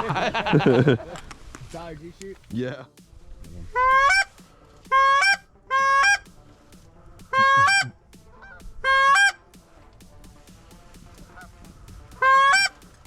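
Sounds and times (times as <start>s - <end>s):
goose honks: 3.7s - 6.3s, 7.3s - 9.4s, 11.1s - 11.6s, 12.2s - 12.8s.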